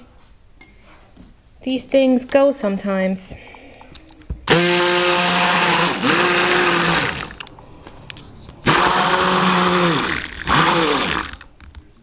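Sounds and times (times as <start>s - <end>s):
stick blender motor: 4.5s - 7.4s, 8.6s - 11.5s.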